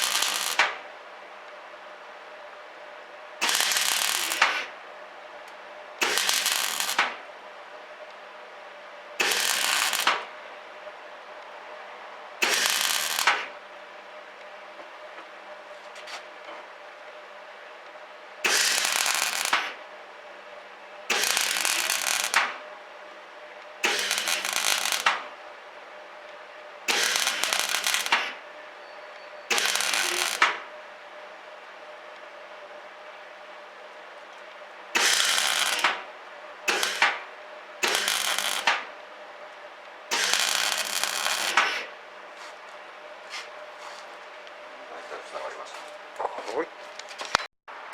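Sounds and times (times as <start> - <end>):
welder arc crackling: 0.0 - 0.8, 3.4 - 4.7, 6.0 - 7.2, 9.2 - 10.3, 12.4 - 13.5, 18.4 - 19.8, 21.1 - 22.6, 23.8 - 25.3, 26.9 - 28.4, 29.5 - 30.7, 35.0 - 36.1, 36.7 - 38.9, 40.1 - 41.9.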